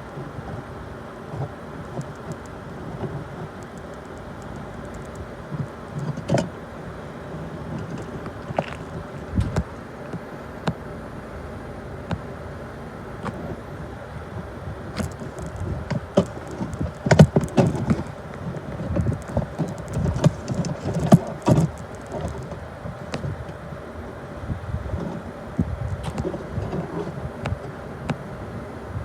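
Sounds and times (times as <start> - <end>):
freight train wheels rumbling: 13.1 - 28.4.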